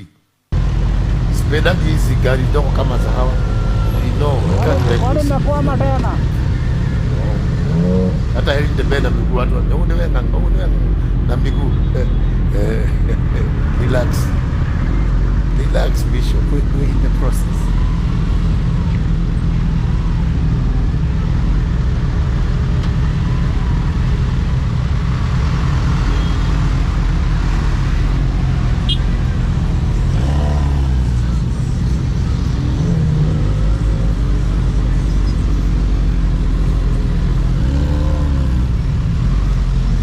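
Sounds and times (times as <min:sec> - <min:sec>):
motorcycle engine at highway speed: 0:17.0 - 0:40.0.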